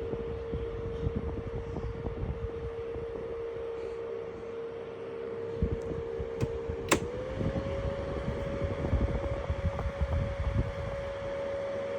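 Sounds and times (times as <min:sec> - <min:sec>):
box fan humming: 0:00.0 - 0:11.9
fan switch click: 0:05.8 - 0:07.3.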